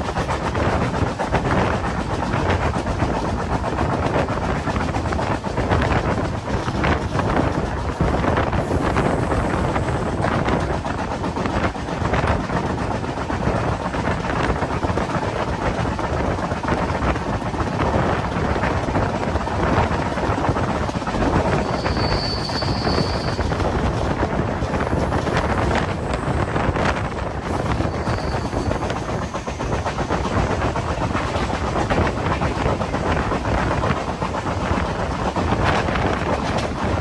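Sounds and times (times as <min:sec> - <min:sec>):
train wheels rumbling on track: 0:00.0 - 0:37.0
high-pitched squeal: 0:21.6 - 0:23.5.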